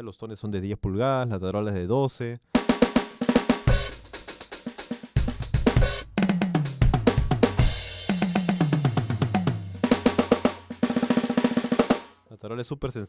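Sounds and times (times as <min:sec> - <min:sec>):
bass drum: 0:02.6 - 0:12.1
snare drum strokes: 0:02.6 - 0:12.2
tom fills: 0:02.6 - 0:12.2.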